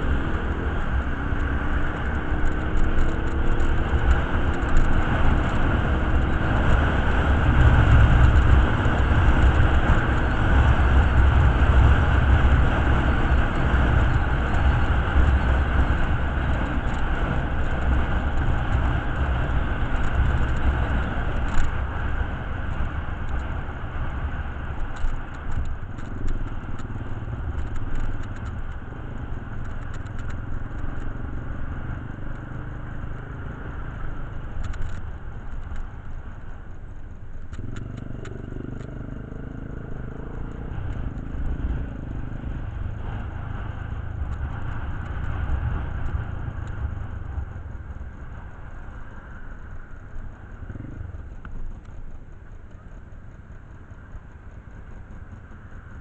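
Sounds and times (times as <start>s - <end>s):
motorcycle engine rumbling: 0.0s - 56.0s
light clicks and rattles: 34.6s - 38.0s.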